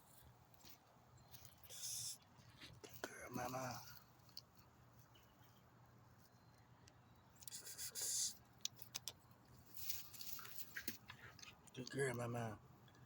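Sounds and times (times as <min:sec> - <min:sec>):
scraping rustle: 0:09.6 - 0:11.6.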